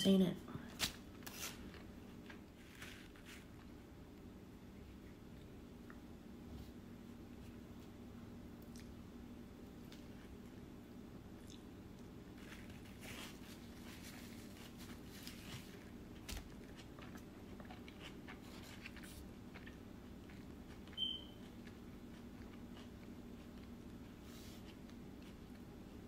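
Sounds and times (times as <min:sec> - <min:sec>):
low steady hum: 0:00.0 - 0:26.0
person biting and chewing: 0:15.4 - 0:25.6.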